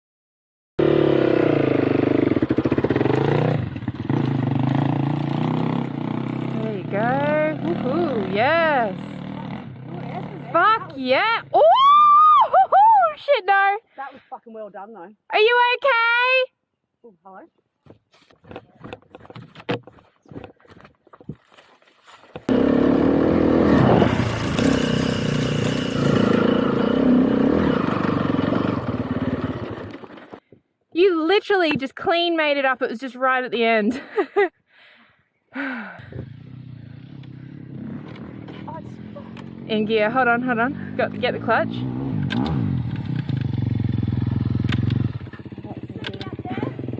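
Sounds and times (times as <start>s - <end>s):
motorcycle engine running: 0.8s - 11.2s, 22.4s - 30.4s, 36.0s - 46.9s.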